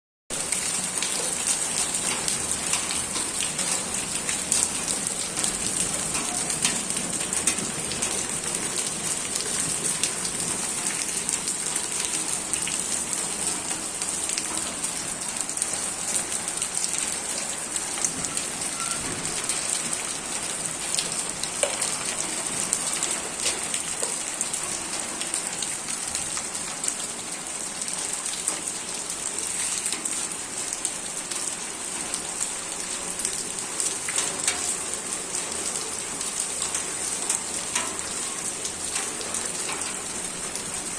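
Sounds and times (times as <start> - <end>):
hailstones ticking on hard surfaces: 0.4 - 16.5, 17.8 - 27.0, 35.4 - 40.9.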